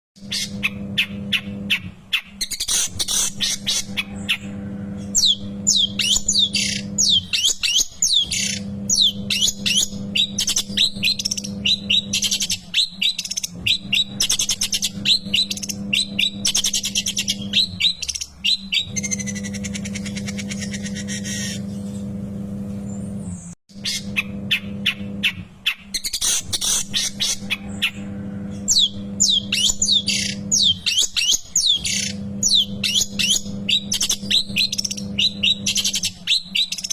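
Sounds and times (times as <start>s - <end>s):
shrike chattering song: 0.2s - 22.0s
steady low hum: 0.2s - 36.3s
harsh bird buzzing: 0.2s - 36.9s.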